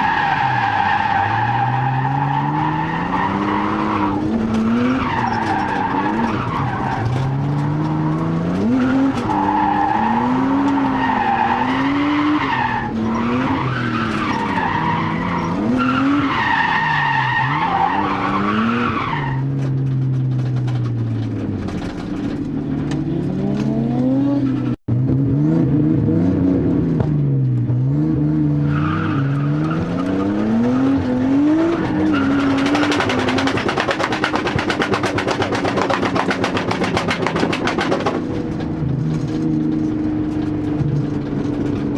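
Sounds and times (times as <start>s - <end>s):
tyre squeal: 0.0s - 19.6s
car engine revving: 0.0s - 41.9s.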